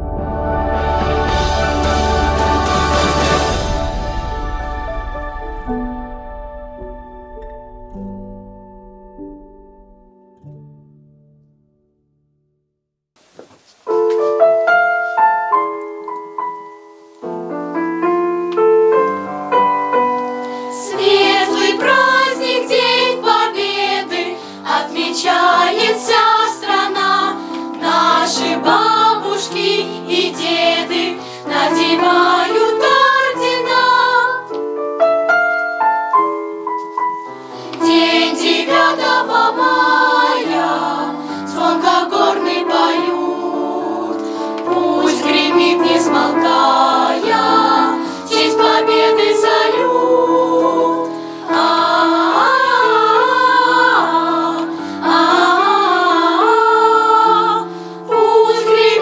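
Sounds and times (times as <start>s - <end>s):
children's choir singing: 0.0s - 6.0s, 20.5s - 34.7s, 37.6s - 59.0s
piano accompaniment: 0.0s - 11.8s, 13.8s - 59.0s.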